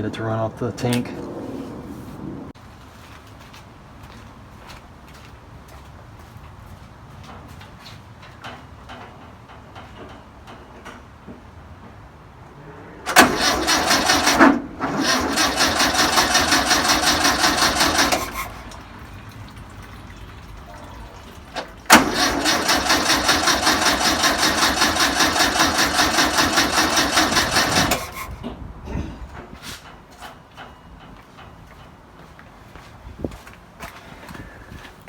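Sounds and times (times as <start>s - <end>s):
engine cranking on starter: 13.1s - 28.6s.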